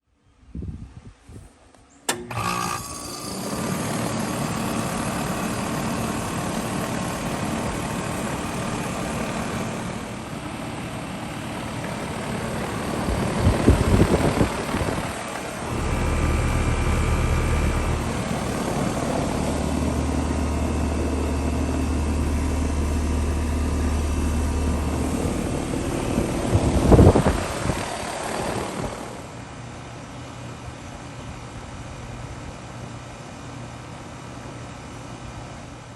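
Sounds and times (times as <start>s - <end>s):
condenser fan rushing: 1.6s - 35.9s
air conditioner compressor hum: 1.8s - 35.9s.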